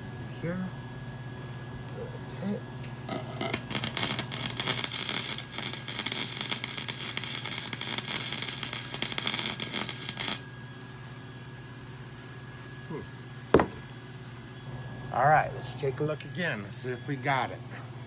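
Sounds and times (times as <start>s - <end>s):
arc welding crackling: 2.8s - 10.6s.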